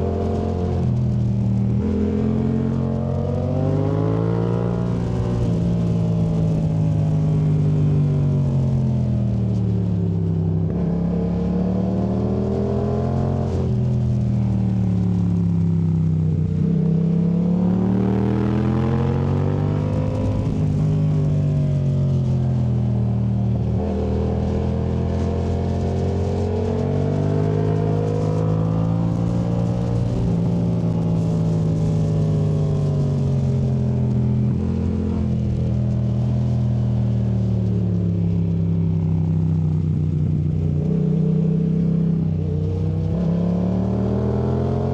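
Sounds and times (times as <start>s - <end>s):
motorcycle engine revving: 10.6s - 44.9s.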